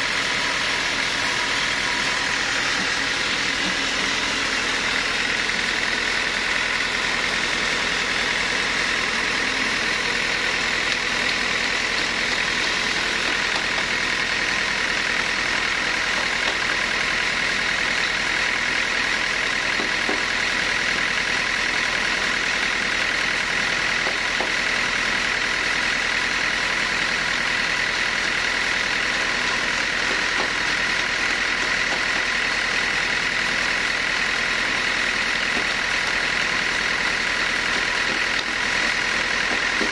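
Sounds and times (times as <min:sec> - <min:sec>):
steady high whine: 0:00.0 - 0:13.4
sawmill machinery drone: 0:00.0 - 0:39.9.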